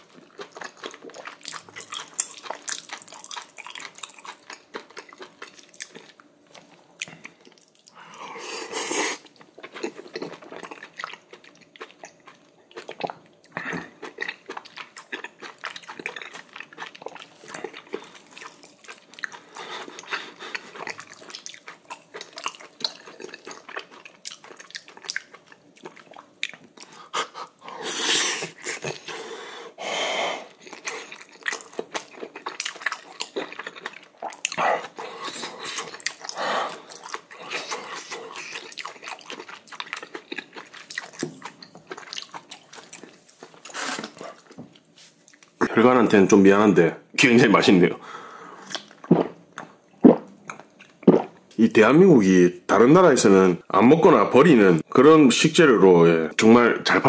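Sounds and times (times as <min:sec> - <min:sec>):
chewing: 0:00.0 - 0:27.8, 0:30.5 - 0:45.7.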